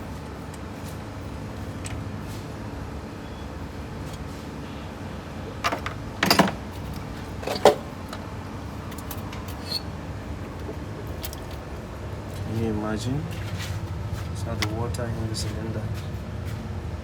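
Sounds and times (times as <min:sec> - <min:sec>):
metal tools clanking: 0:05.6 - 0:11.7.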